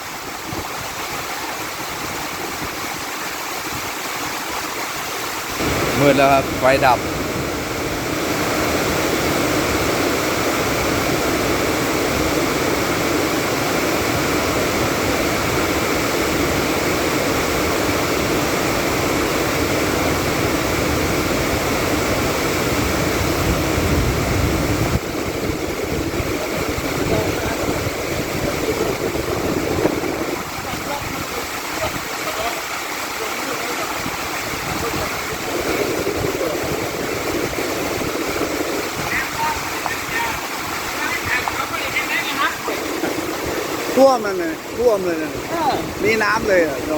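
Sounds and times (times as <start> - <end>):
heavy rain pouring: 0.0 - 46.9.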